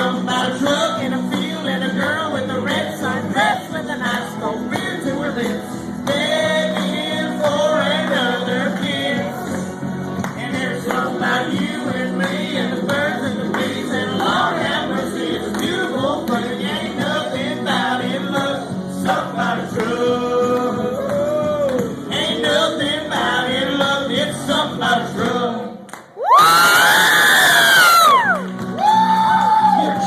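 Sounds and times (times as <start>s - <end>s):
country song with singing: 0.0s - 26.0s
loud whooping cry: 26.2s - 30.0s.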